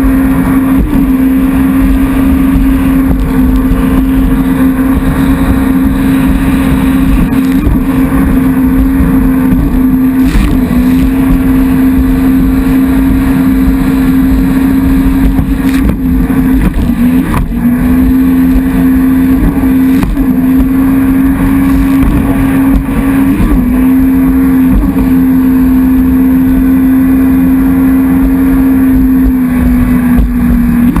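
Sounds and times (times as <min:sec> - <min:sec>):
jet ski engine running: 0:00.0 - 0:31.0
rough water: 0:00.0 - 0:31.0
wind noise: 0:00.0 - 0:31.0.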